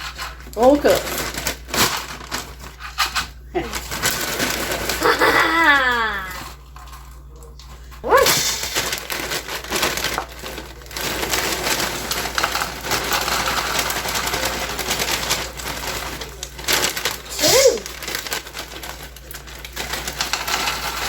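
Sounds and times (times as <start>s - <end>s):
dry cereal pouring into a bowl: 3.7s - 5.5s, 8.1s - 21.0s.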